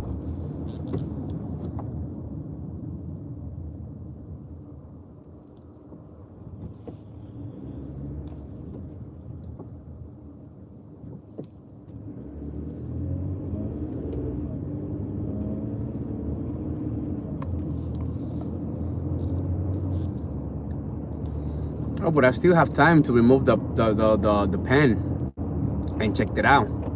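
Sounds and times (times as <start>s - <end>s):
car engine and road rumble: 0.0s - 26.9s.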